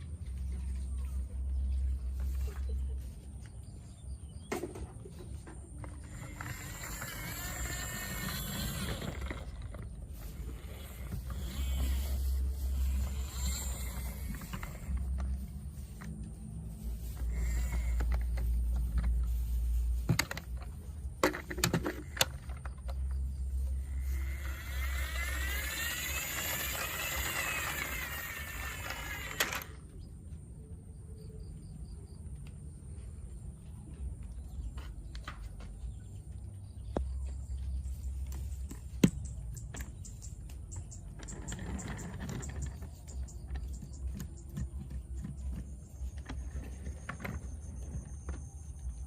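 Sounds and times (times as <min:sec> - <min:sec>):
toy trucks clicking and knocking: 0:05.6 - 0:15.3, 0:20.1 - 0:29.9, 0:38.8 - 0:48.6.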